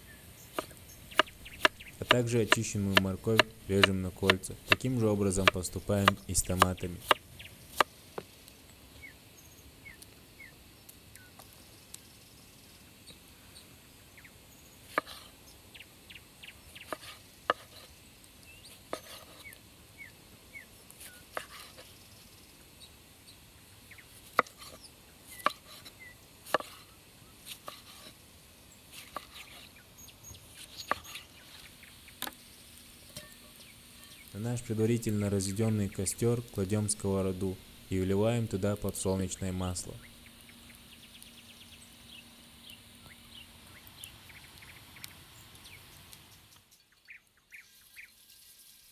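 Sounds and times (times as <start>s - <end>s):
faint bird chirps: 40.0s - 48.4s.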